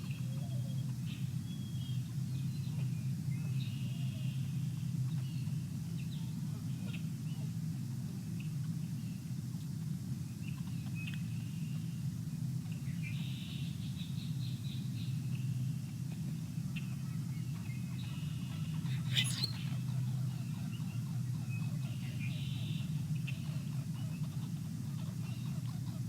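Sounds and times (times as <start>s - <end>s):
small birds chirping: 16.8s - 24.6s.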